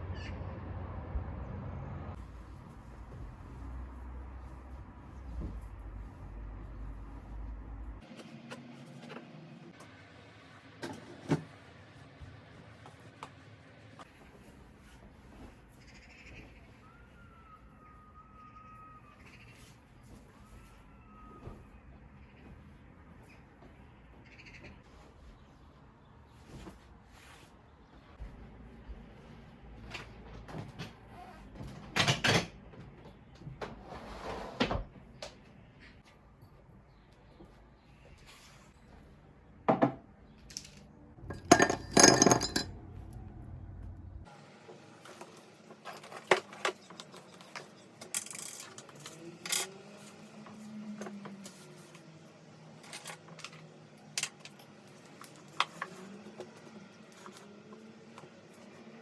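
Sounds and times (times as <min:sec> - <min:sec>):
rustling or scraping: 0:24.6 - 0:30.2
household things knocking and clattering: 0:41.2 - 0:42.7.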